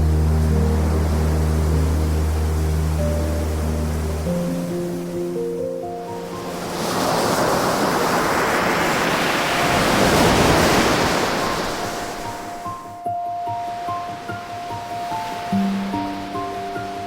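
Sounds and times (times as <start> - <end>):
soft music with held notes: 0.0 - 7.5, 10.8 - 17.0
ocean wave washing in: 0.0 - 13.0.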